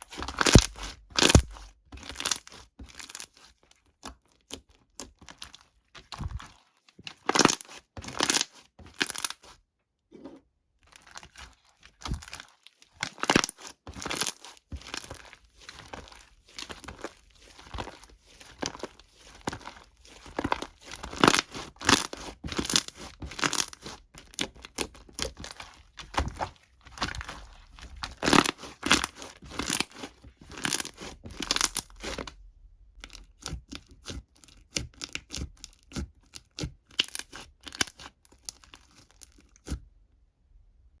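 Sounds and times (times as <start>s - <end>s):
thin material crinkling and tearing: 0.0s - 9.6s, 10.8s - 32.3s.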